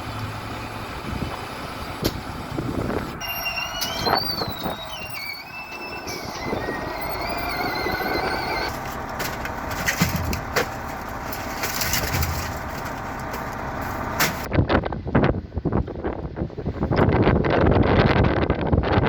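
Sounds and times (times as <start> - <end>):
heavy motor vehicle running: 0.0 - 15.1
wind buffeting microphone: 0.9 - 3.2, 12.0 - 19.0
high wavering squeal: 3.2 - 9.7.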